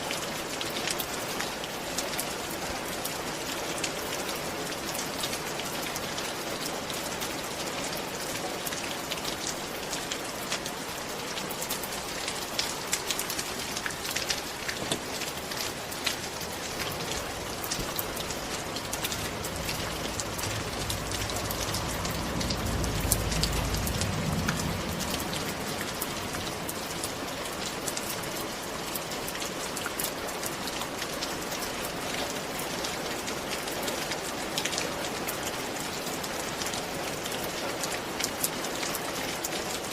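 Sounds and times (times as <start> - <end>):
rain falling: 0.0 - 39.9
low rumble: 16.2 - 27.8.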